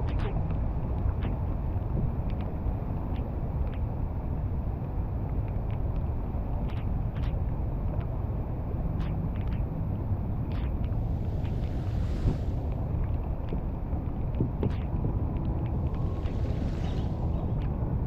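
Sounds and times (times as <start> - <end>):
light ticks: 0.1 - 3.9, 4.8 - 8.2
wind buffeting microphone: 9.9 - 18.0.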